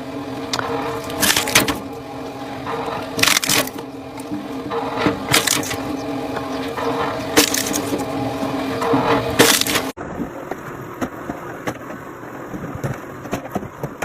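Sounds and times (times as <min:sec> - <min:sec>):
steady machine hum: 0:00.0 - 0:14.0
wood cracking and splintering: 0:00.5 - 0:01.9, 0:03.0 - 0:04.5, 0:05.1 - 0:06.0, 0:07.3 - 0:08.1, 0:09.4 - 0:09.9.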